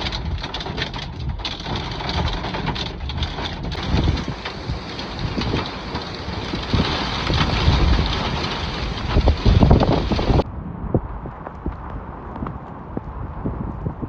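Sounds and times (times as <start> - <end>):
heavy rain and hail: 0.0 - 10.4
wind buffeting microphone: 0.0 - 14.0.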